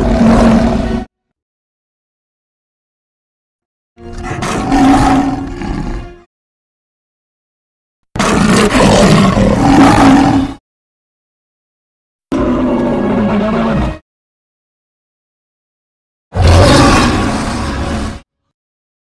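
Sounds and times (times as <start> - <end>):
lion roaring: 0.0 - 1.1, 4.1 - 6.2, 8.2 - 10.6, 12.3 - 14.0, 16.3 - 18.3.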